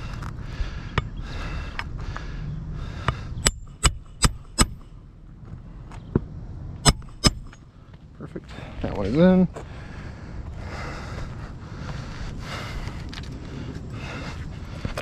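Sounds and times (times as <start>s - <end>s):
hammer striking roofing nail: 3.4s - 4.9s, 6.8s - 7.6s.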